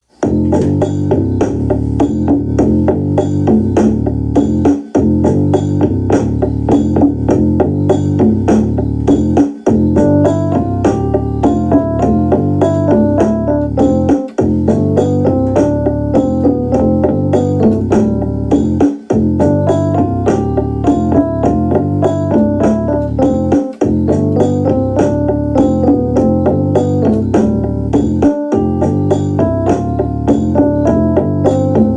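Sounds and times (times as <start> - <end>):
steady low bass: 0.2 - 31.9
quick melody notes: 7.6 - 31.9.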